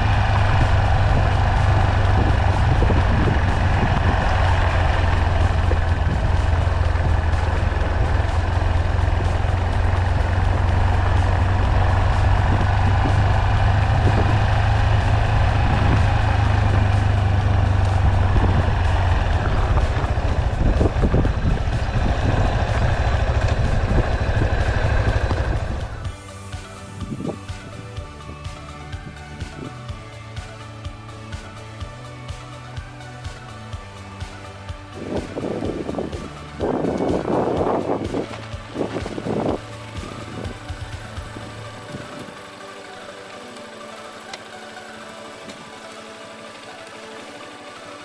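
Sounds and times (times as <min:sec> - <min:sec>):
wind noise: 0:00.0 - 0:42.9
background music: 0:00.0 - 0:48.0
motorcycle engine droning: 0:00.0 - 0:48.0
road noise: 0:00.0 - 0:48.0
rushing noise: 0:00.0 - 0:48.0.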